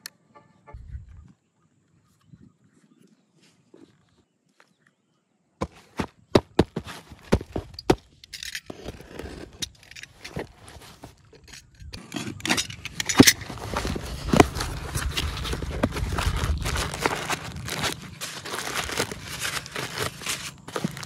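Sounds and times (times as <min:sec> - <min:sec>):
scraping and rustling: 0:05.6 - 0:21.0.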